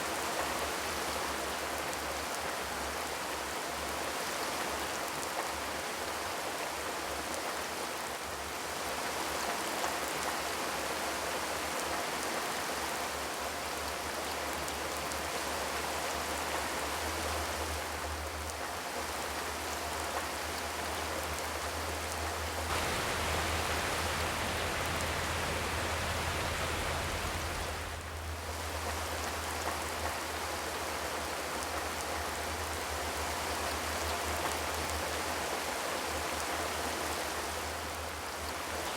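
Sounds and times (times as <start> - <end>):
steady rain falling: 14.2 - 38.9.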